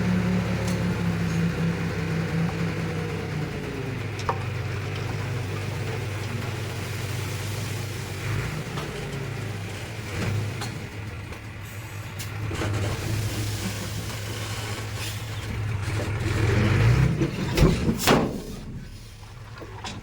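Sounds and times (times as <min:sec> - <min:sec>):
heavy diesel engine running: 0:00.0 - 0:19.9.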